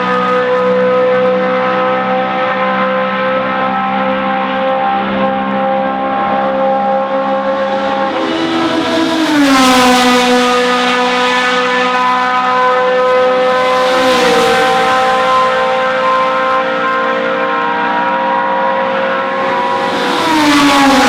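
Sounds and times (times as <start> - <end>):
racing car engine at high revs: 0.0 - 21.0.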